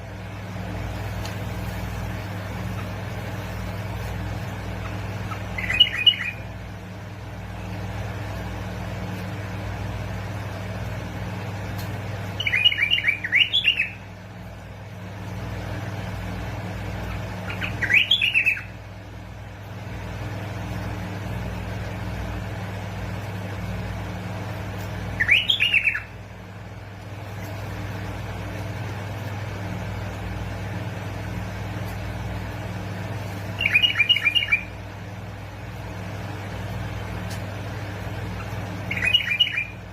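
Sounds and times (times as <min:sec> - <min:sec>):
steady low hum: 0:00.0 - 0:39.9
bulbul singing: 0:02.1 - 0:08.0, 0:12.1 - 0:14.3, 0:16.7 - 0:19.2, 0:25.1 - 0:26.7, 0:33.0 - 0:39.9.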